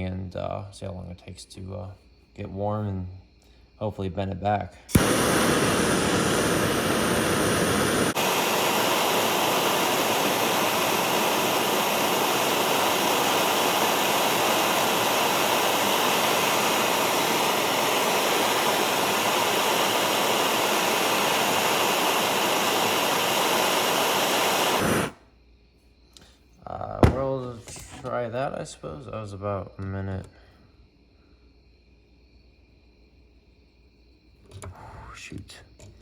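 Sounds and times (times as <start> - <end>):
gas torch flame hissing: 4.9 - 25.2, 27.0 - 28.1.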